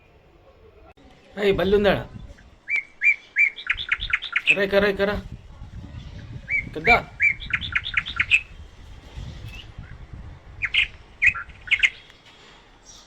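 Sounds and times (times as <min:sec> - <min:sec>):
cockatiel chirping: 0:02.6 - 0:04.6.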